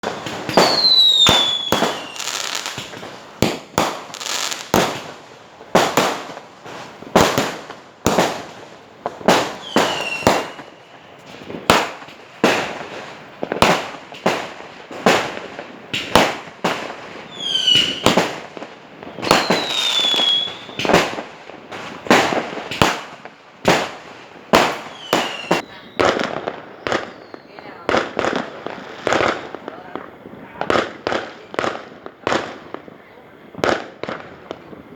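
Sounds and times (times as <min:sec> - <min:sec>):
fireworks whistles falling in pitch: 0:00.0 - 0:05.1, 0:09.4 - 0:12.6, 0:17.3 - 0:18.4, 0:19.1 - 0:21.1, 0:24.6 - 0:28.4
fireworks bangs: 0:00.0 - 0:34.9.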